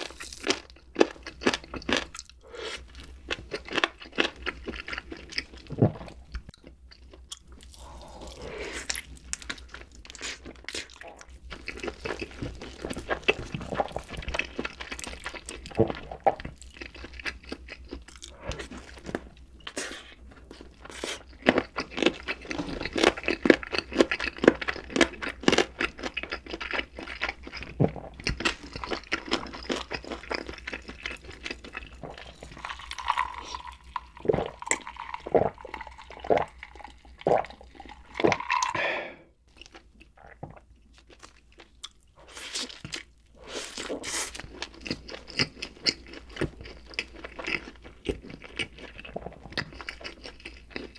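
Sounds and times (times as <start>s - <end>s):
man crunching and chewing food: 0.0s - 50.9s.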